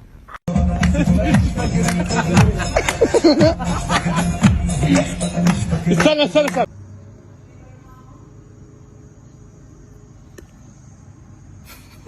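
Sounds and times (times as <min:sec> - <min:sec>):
brief hiss: 0:11.6 - 0:12.0.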